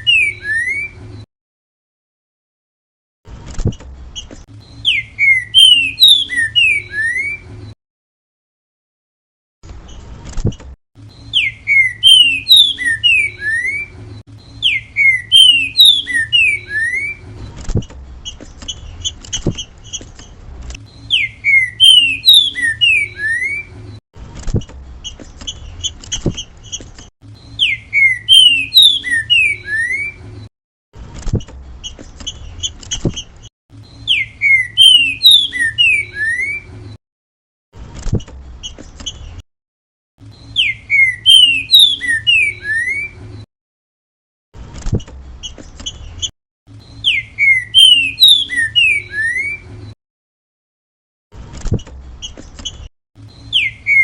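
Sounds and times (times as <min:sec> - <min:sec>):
bird singing whistled phrases: 0:00.0 - 0:01.0, 0:04.7 - 0:07.4, 0:11.1 - 0:17.2, 0:20.9 - 0:23.7, 0:27.4 - 0:30.2, 0:34.0 - 0:36.7, 0:40.4 - 0:43.2, 0:46.9 - 0:49.6, 0:53.4 - 0:54.0.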